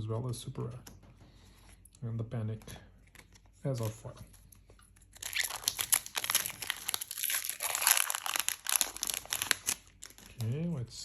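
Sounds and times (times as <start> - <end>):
foil wrapper tearing and crinkling: 5.1 - 10.6.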